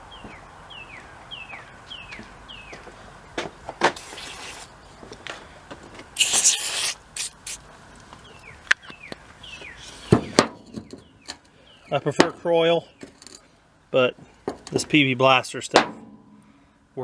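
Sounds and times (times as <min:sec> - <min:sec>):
bird chirps: 0:00.0 - 0:02.8, 0:08.2 - 0:12.0
aerosol can spraying: 0:04.0 - 0:04.7, 0:06.2 - 0:07.6.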